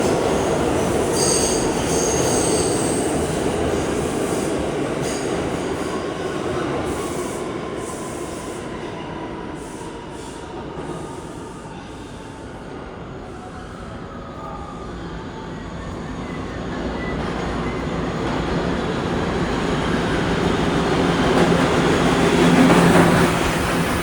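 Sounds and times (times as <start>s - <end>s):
subway train rumble: 0.0s - 24.0s
steel wheels squealing: 1.1s - 3.1s.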